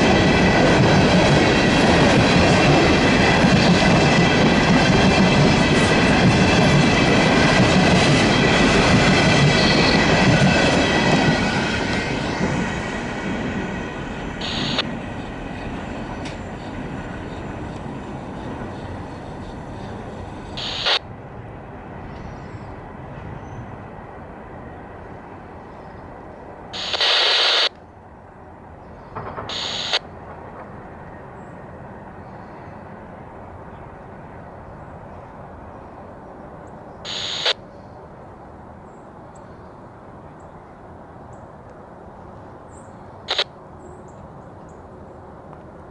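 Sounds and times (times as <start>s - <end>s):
freight train rumbling: 0.0s - 27.2s, 28.0s - 45.9s
wheels squealing against rail: 9.4s - 10.2s.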